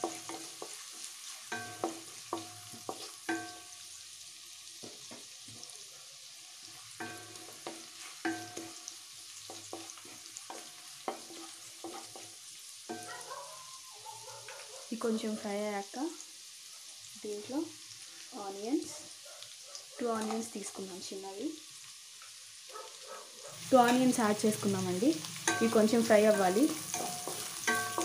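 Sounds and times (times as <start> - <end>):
spatula knocking and scraping pan: 0.0 - 3.8, 4.8 - 5.8, 6.8 - 13.2, 25.3 - 28.0
vegetables sizzling in a wok: 0.0 - 28.0.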